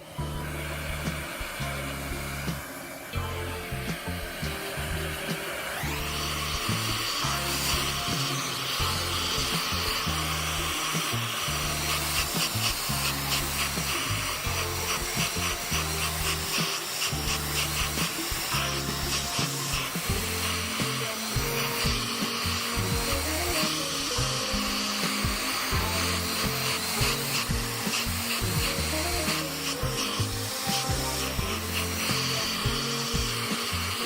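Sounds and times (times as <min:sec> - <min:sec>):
background music with bass line: 0:00.0 - 0:34.0
rushing blowing noise: 0:00.0 - 0:34.0.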